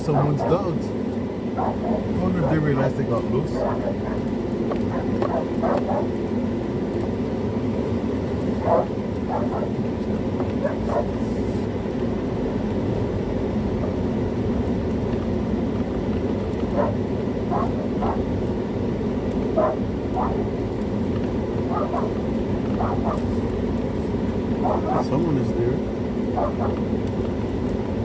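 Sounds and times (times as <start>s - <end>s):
dogs barking: 0.0s - 6.3s, 8.6s - 11.2s, 16.6s - 18.5s, 19.4s - 20.6s, 21.6s - 23.4s, 24.5s - 25.3s, 26.2s - 26.9s
steady low rumble: 0.0s - 28.0s.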